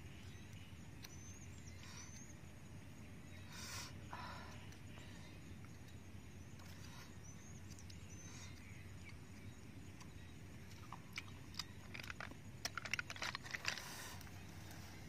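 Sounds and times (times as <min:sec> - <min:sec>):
faint bird chirps: 0:00.0 - 0:12.4
snail shells being handled: 0:05.8 - 0:15.0.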